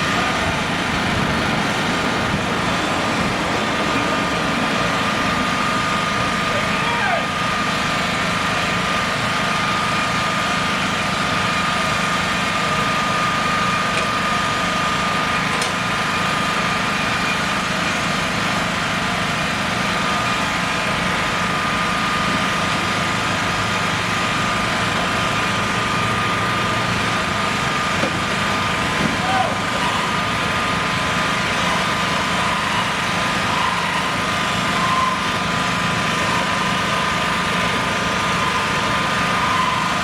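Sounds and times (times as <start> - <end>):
high whine: 0.0 - 8.2
engine running steadily: 0.0 - 40.0.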